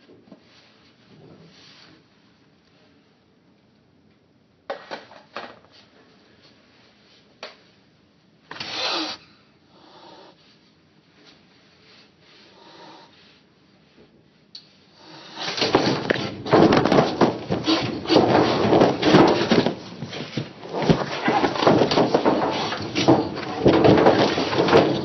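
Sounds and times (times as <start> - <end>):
cat scuffling and scratching: 15.1 - 25.0.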